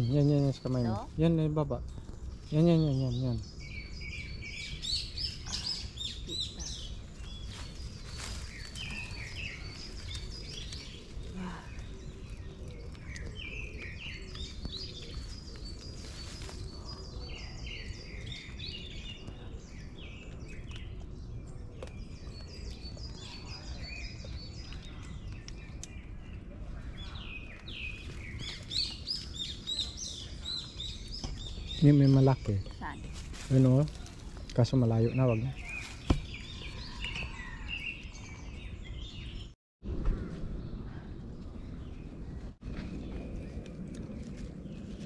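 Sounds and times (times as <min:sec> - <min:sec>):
songbirds chirping and singing: 0:00.0 - 0:39.6
steady low rumble: 0:39.8 - 0:45.0.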